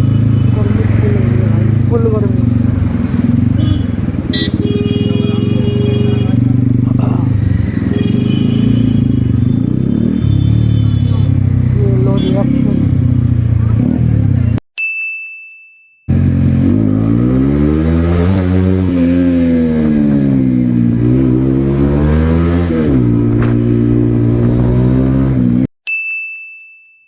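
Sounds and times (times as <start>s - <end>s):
motorcycle engine revving: 0.0s - 14.6s, 16.1s - 25.7s
ringing ding sound effect: 14.8s - 16.1s, 25.9s - 27.0s.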